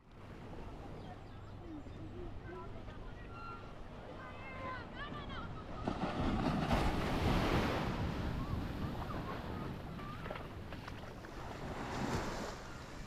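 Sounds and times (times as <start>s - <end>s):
waves breaking on beach: 3.2s - 13.0s.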